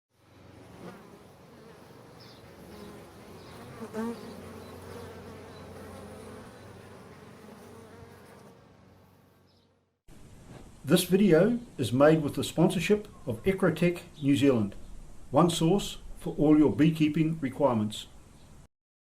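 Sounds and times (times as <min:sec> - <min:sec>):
bee flying past: 0:00.2 - 0:10.0
honey bees buzzing: 0:00.2 - 0:10.0.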